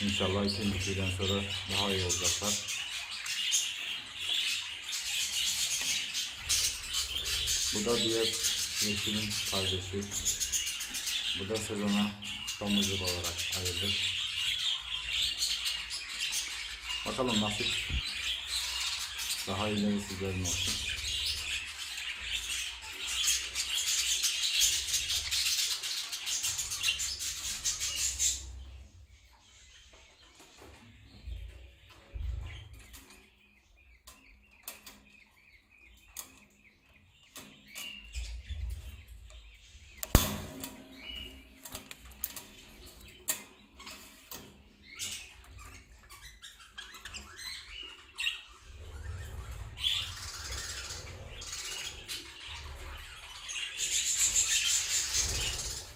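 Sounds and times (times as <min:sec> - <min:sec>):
budgerigars chattering and chirping: 0:00.0 - 0:55.9
clicks and knocks in cage: 0:40.0 - 0:44.6.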